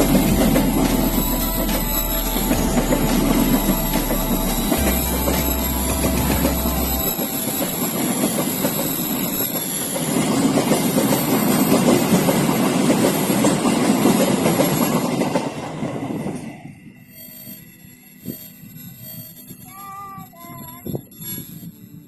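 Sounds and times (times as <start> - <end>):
train wheels clattering over rails: 0.0 - 16.5.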